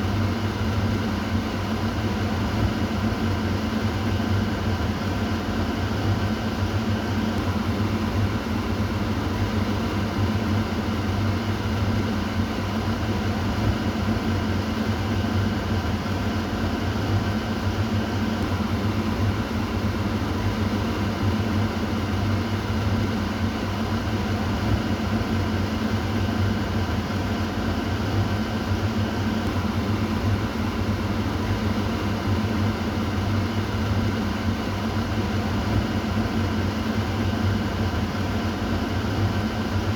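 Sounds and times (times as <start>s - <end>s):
exhaust fan running: 0.0s - 39.9s.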